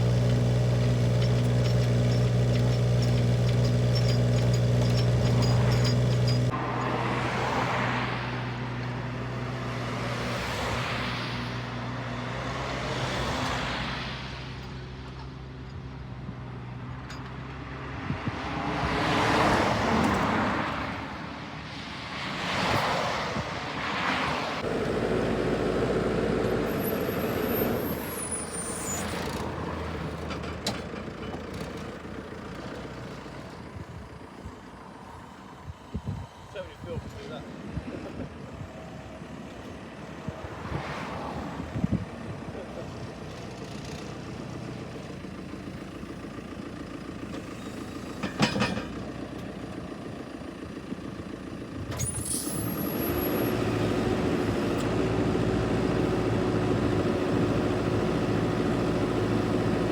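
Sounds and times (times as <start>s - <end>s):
vehicle engine running: 0.0s - 6.6s, 42.2s - 51.9s, 52.9s - 59.9s
passing vehicles: 0.0s - 59.9s.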